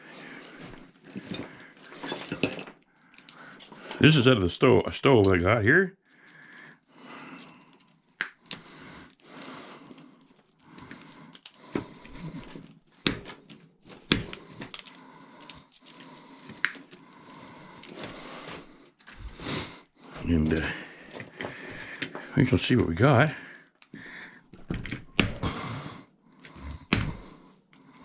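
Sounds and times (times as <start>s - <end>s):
rustling and scraping of parts: 0.2s - 4.3s, 6.2s - 25.2s
sharp clicks and snaps: 7.8s - 8.7s.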